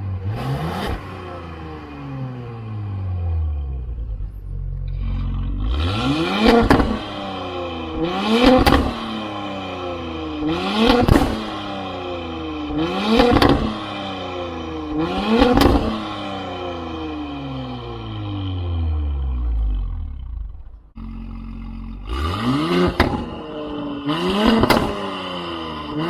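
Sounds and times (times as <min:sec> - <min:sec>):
car engine revving: 0:00.0 - 0:26.0
exhaust crack: 0:03.6 - 0:12.0, 0:12.7 - 0:14.0, 0:14.8 - 0:26.0.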